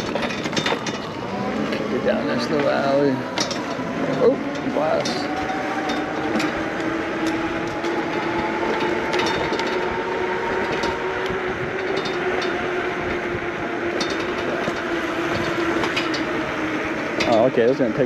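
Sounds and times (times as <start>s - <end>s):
tyres rumbling on grit: 0.0s - 12.6s.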